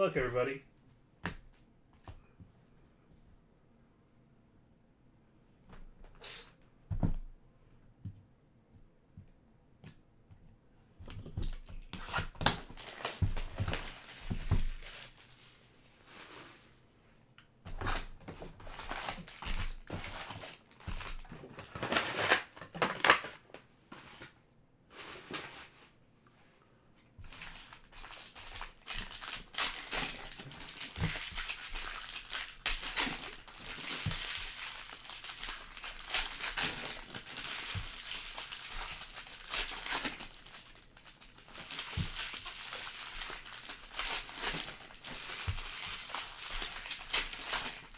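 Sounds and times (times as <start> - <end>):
plastic wrapping crinkling and tearing: 11.8 - 16.6, 17.8 - 23.6, 27.2 - 47.9.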